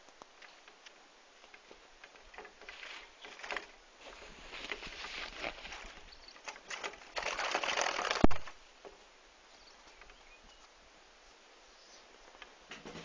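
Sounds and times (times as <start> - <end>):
bird wings flapping against window: 2.4 - 8.6.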